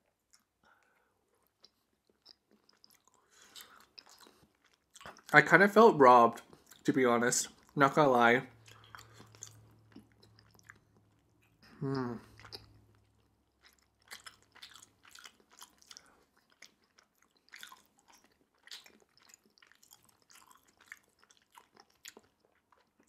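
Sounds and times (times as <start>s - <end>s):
person chewing with wet clicks: 0.0s - 5.4s, 6.4s - 7.8s, 8.5s - 11.6s, 12.2s - 23.0s
short hummed voice: 11.8s - 12.2s.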